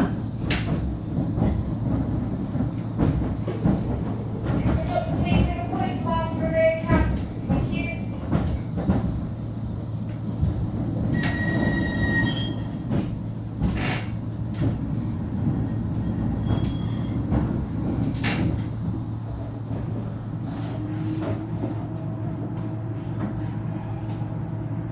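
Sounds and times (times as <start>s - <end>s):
tram rumbling on rails: 0.0s - 24.9s
high wheel squeal: 11.1s - 12.8s.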